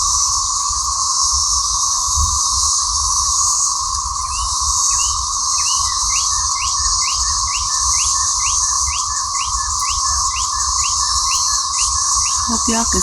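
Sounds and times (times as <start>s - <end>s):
cicadas chorus: 0.0s - 13.0s
bird chirping: 12.0s - 13.0s.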